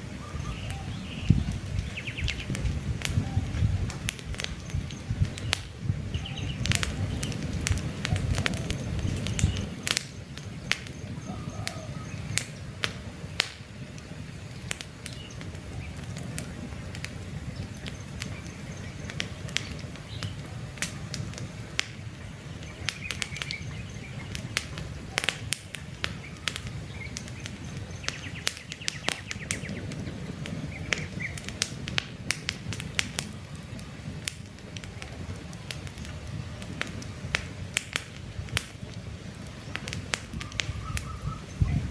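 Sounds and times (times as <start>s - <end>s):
campfire crackling and popping: 0.0s - 41.9s
bird chirping: 0.2s - 3.7s, 4.5s - 12.8s, 22.2s - 25.2s, 26.2s - 31.5s, 40.4s - 41.9s.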